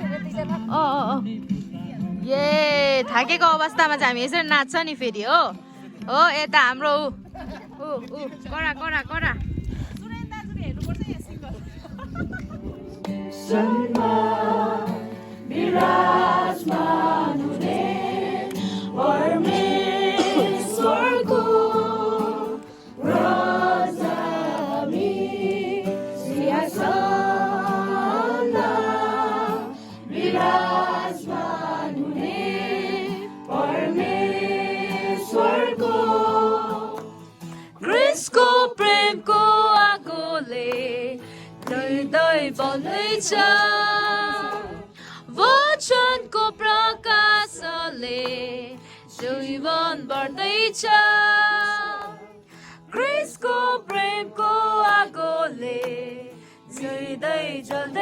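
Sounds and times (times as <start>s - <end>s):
group singing worship song: 13.1s - 46.4s, 47.0s - 52.2s, 52.9s - 58.0s.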